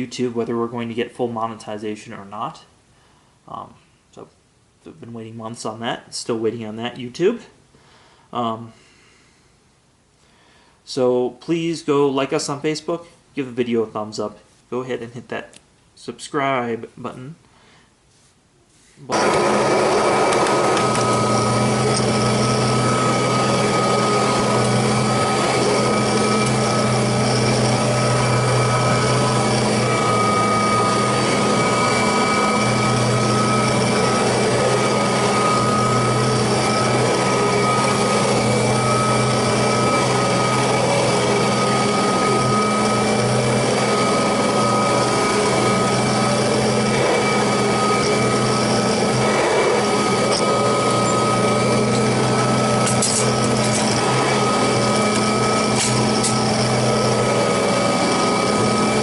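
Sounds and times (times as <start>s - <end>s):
vacuum cleaner running: 19.1s - 59.0s.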